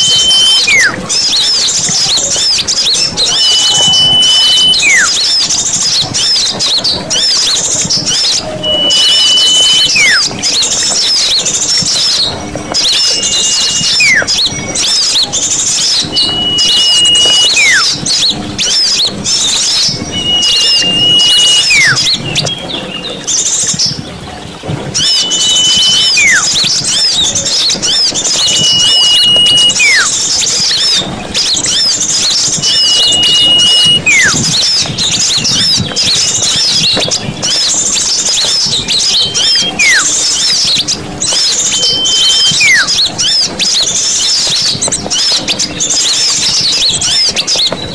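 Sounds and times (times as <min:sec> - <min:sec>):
whistled falling note: 0:00.0 - 0:01.3, 0:03.2 - 0:05.4, 0:08.1 - 0:10.3, 0:12.8 - 0:15.2, 0:15.8 - 0:18.0, 0:20.1 - 0:22.2, 0:25.0 - 0:27.1, 0:27.8 - 0:30.1, 0:32.6 - 0:34.8, 0:38.4 - 0:40.2, 0:41.3 - 0:43.0
songbirds chirping chorus: 0:00.0 - 0:47.9.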